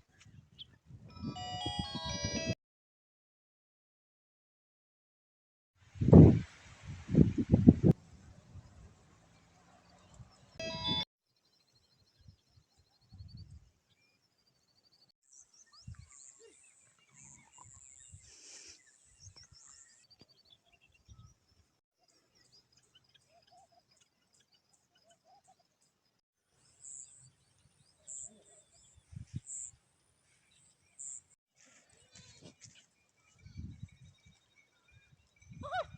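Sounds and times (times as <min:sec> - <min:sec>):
small birds chirping: 0:11.4 - 0:35.8.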